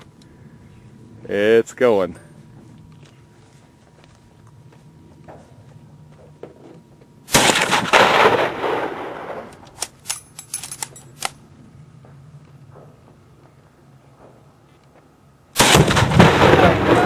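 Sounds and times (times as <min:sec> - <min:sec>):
rifle shot: 0:07.3 - 0:09.9, 0:15.6 - 0:17.0
heavy explosion blast: 0:15.6 - 0:17.0.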